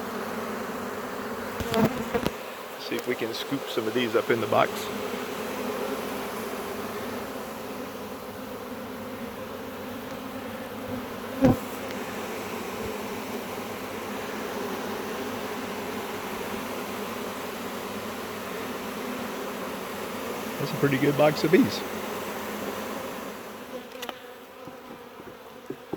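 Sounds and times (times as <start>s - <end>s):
bee swarm buzzing: 0.0s - 25.9s.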